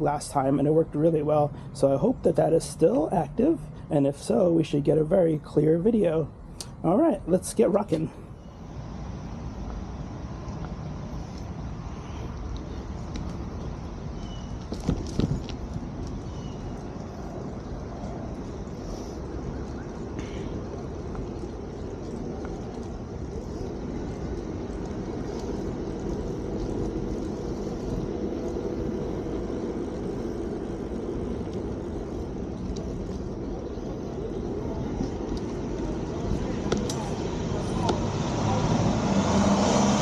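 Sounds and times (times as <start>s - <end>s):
bike tyre noise: 7.4s - 40.0s
wind rumble: 8.0s - 40.0s.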